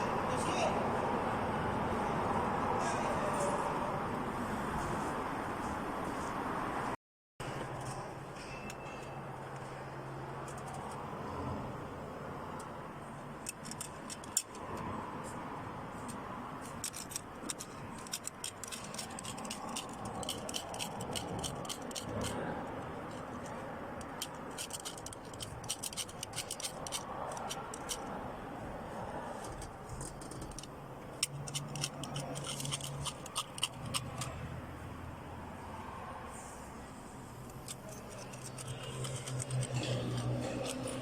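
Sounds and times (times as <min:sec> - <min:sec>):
workshop background noise: 0:01.5 - 0:41.0
hand tools clicking and snipping: 0:13.4 - 0:15.4, 0:16.0 - 0:28.3, 0:29.4 - 0:34.5, 0:37.4 - 0:41.0.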